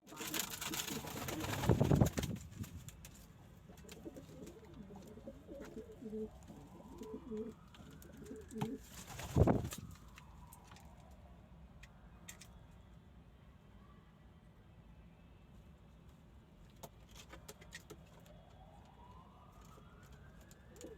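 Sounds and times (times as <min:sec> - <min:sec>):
pigeons cooing: 0:03.7 - 0:08.9.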